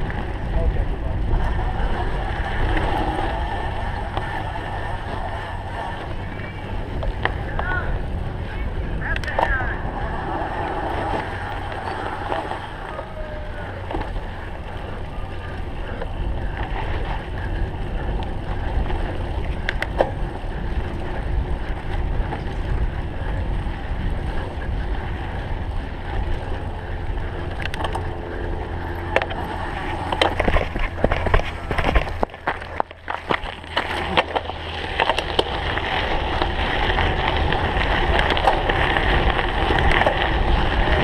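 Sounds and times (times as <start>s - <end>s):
sharp clicks and rattles: 0.0s - 12.9s, 26.2s - 41.0s
bike rumbling over rough ground: 0.0s - 41.0s
wind on microphone: 0.0s - 41.0s.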